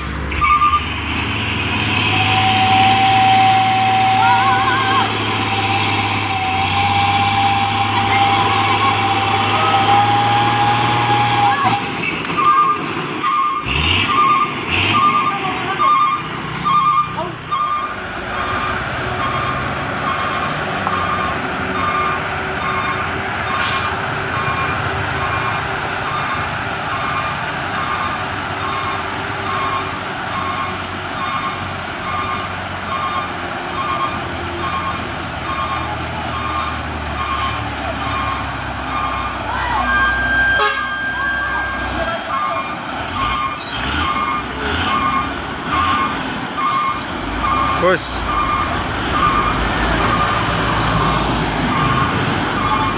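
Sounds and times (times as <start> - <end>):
truck engine running: 0.0 - 52.9
reversing alarm beeping: 0.4 - 1.0, 2.1 - 52.9
horn tone: 39.8 - 42.6.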